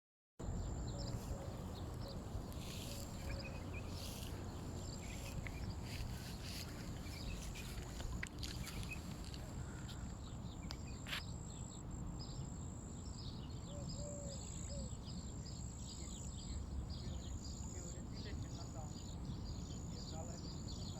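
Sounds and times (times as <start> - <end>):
low wind-like rumble: 0.4 - 11.0
bird chirps: 0.5 - 20.9.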